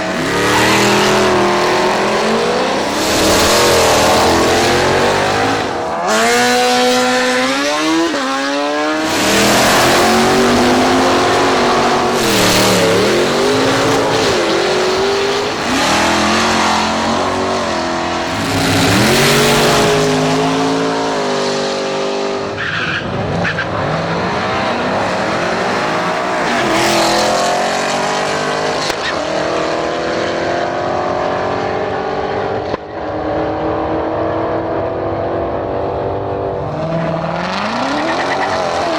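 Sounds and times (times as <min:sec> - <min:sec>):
racing car engines revving: 0:00.0 - 0:38.9
tyre squeal: 0:36.7 - 0:38.9.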